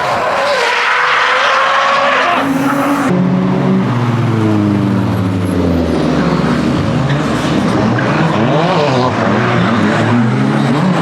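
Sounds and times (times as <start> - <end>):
tyres squealing: 0.0 - 3.1.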